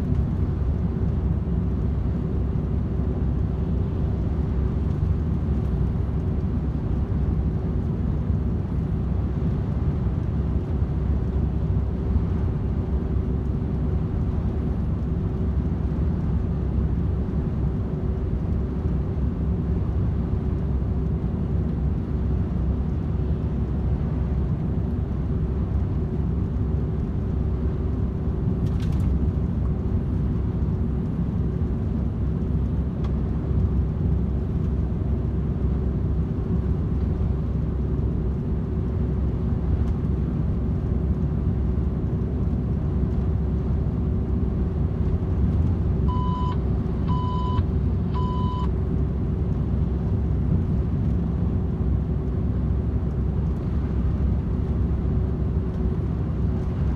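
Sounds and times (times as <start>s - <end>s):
truck engine and road noise drone: 0.0s - 56.9s
short electronic beeps: 46.1s - 48.7s.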